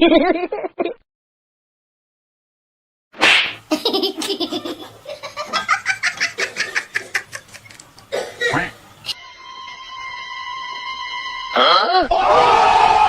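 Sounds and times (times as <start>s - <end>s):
breathy laughter: 4.5s - 7.7s.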